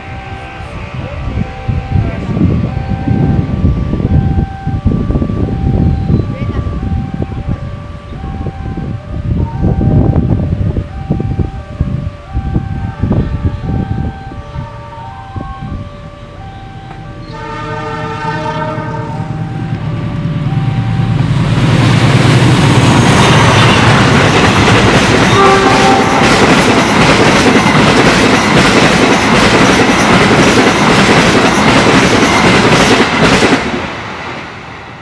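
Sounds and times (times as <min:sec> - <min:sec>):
diesel engine rumble: 0:00.0 - 0:28.1
train passing at speed: 0:00.0 - 0:35.0
locomotive horn: 0:12.0 - 0:21.1, 0:25.2 - 0:26.6.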